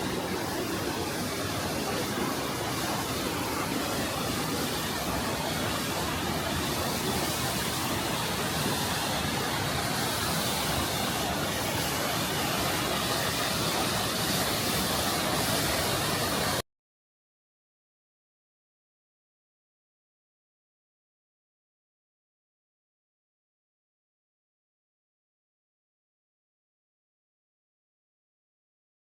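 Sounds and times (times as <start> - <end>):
waterfall rushing: 0.0 - 16.6.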